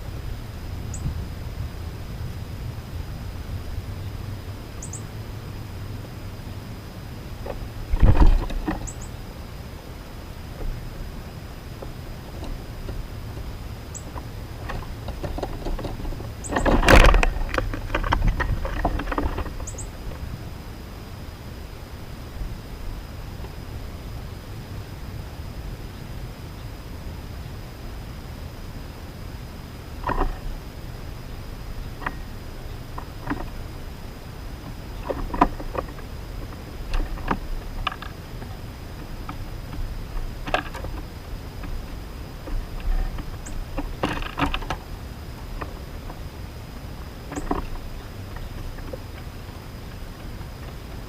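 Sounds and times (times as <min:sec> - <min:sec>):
low steady rumble: 0:00.0 - 0:51.0
short high bird chirps: 0:04.8 - 0:05.1.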